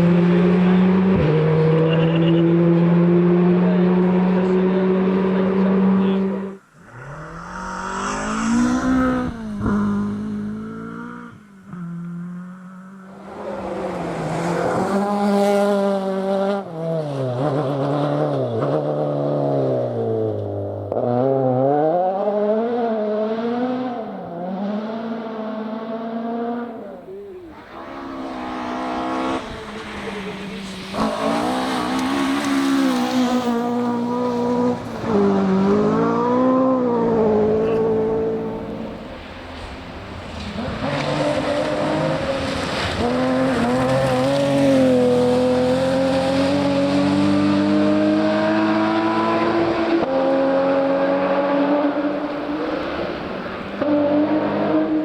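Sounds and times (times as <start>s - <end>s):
rally car engine revving: 0.0s - 55.0s
steady engine note: 6.0s - 10.7s.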